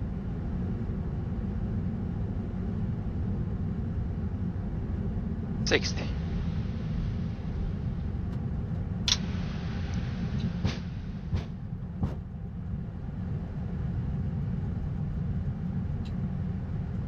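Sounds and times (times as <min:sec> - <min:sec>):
jet cockpit rumble: 0:00.0 - 0:17.0
airflow hiss: 0:05.7 - 0:11.7.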